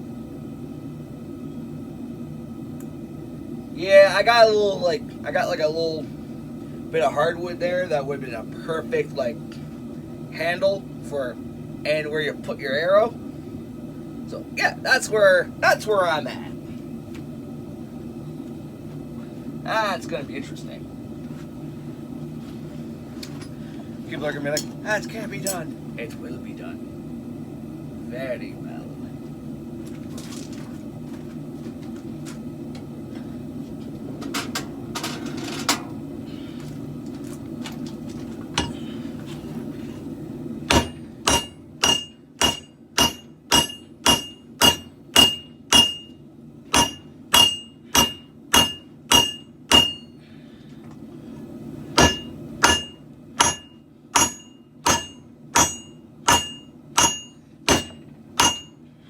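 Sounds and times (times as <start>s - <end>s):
forge running noise: 0.0s - 59.0s
hammer ringing on hot steel: 38.6s - 38.8s, 40.7s - 50.2s, 52.0s - 58.8s.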